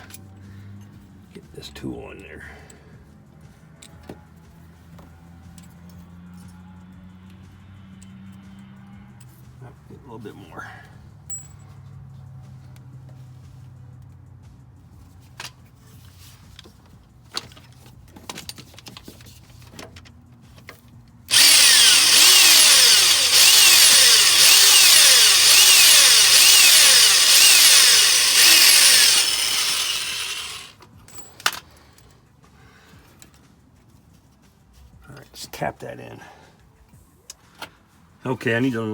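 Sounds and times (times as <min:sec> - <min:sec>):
hand tools clicking and knocking: 0:17.4 - 0:31.8
power drill boring into metal: 0:21.3 - 0:30.7.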